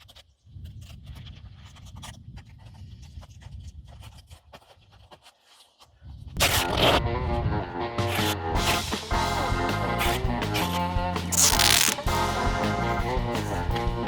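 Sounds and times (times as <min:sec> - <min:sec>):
music: 0:06.6 - 0:14.0
handling scratching and rustling: 0:11.3 - 0:12.1.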